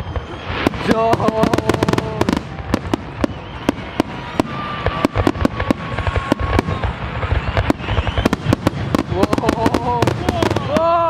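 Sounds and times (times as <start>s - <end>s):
thin steady whistling tone: 0.0s - 1.1s, 2.9s - 5.2s, 5.8s - 8.7s
fireworks cracking and popping: 0.0s - 11.0s.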